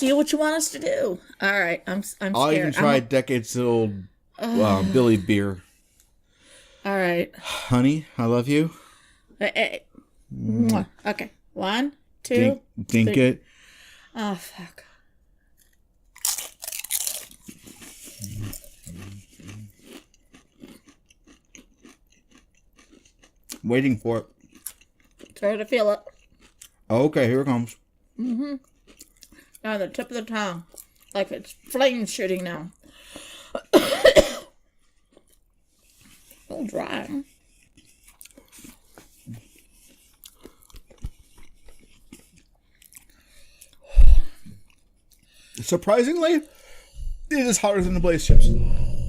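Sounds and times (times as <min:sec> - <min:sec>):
chip crunching and chewing: 0:15.6 - 0:30.0, 0:30.6 - 0:33.3, 0:34.8 - 0:43.8
closed-mouth hums: 0:47.9 - 0:49.0.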